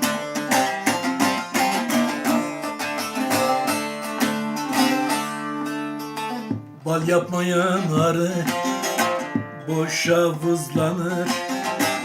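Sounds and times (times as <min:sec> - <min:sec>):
plucked string instrument music: 0:00.0 - 0:12.0.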